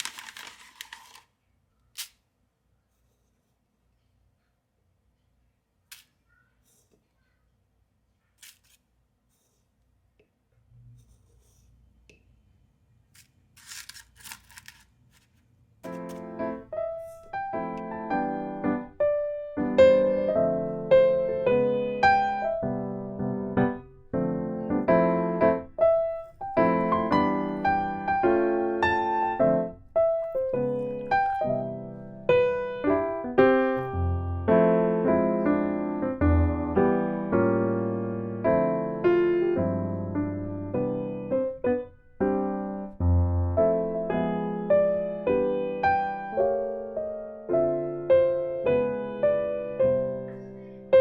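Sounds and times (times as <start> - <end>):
scraping and rustling: 0.0 - 1.3, 13.2 - 17.3
gentle piano music: 15.8 - 51.0.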